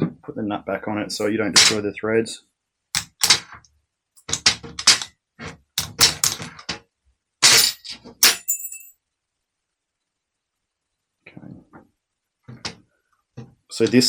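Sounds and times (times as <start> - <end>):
hammer tapping on metal nut: 3.0 - 3.4, 5.8 - 6.4.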